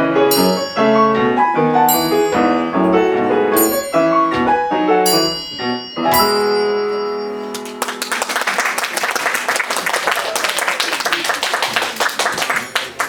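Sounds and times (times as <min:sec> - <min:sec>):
song chord with piano: 0:00.0 - 0:08.7
audience applause: 0:07.5 - 0:13.0.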